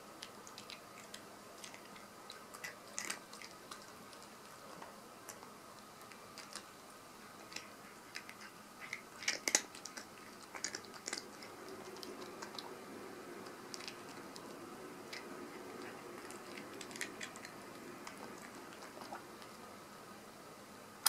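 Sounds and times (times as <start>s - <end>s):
cat crunching dry treats: 0.1s - 19.6s.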